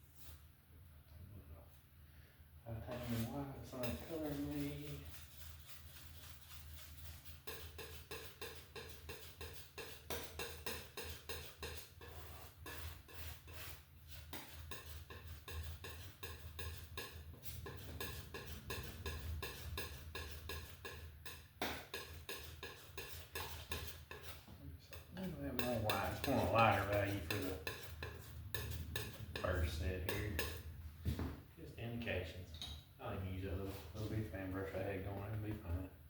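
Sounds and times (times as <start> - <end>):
painting tool clicking and scraping: 3.8 - 30.6.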